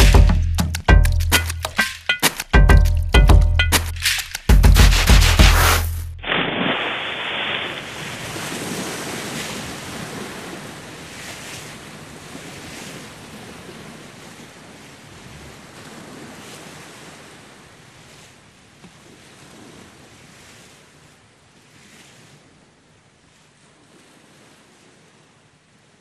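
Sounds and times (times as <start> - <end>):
ocean waves washing in: 4.8 - 26.0.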